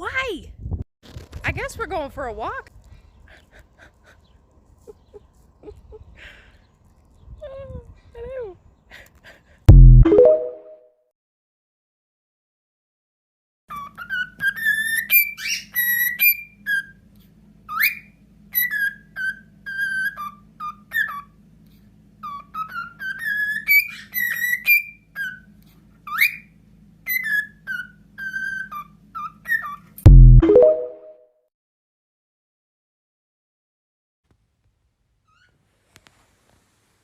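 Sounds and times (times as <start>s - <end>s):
loud thump: 9.7s - 10.1s, 30.1s - 30.4s
pet bird whistling: 13.7s - 17.0s, 17.7s - 21.3s, 22.2s - 25.5s, 26.1s - 26.5s, 27.1s - 29.8s.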